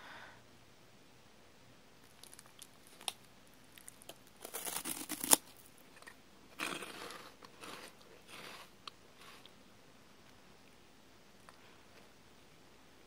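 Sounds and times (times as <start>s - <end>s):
crunching snack stick: 2.1s - 9.5s.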